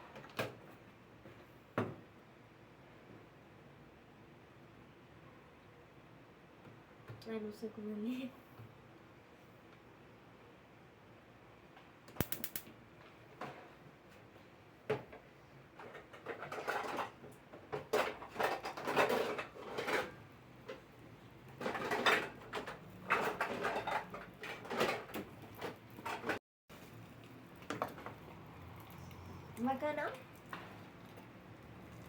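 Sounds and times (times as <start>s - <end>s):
quick run of clicks: 12.1s - 12.7s
kitchen clattering and scraping: 15.8s - 26.4s.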